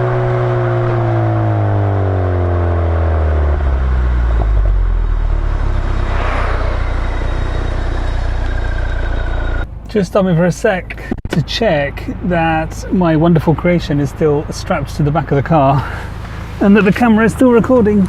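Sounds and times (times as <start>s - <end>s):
car exhaust drone: 0.0s - 9.9s, 13.5s - 18.0s.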